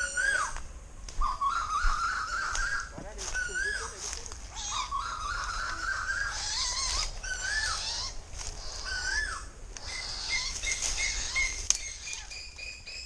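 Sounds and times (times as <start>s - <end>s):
bird whistled notes: 0.0s - 0.6s, 1.2s - 4.0s
small birds twittering: 0.0s - 13.0s.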